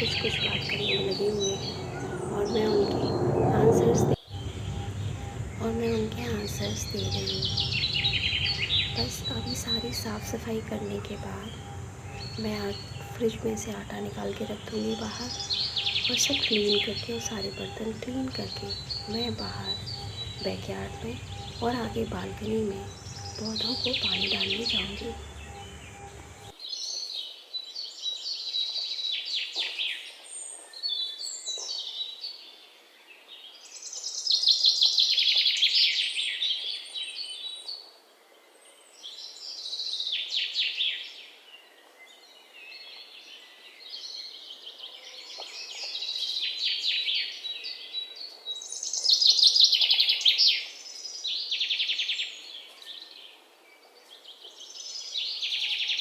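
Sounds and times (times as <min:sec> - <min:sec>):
birds chirping and singing: 0:00.0 - 0:27.1.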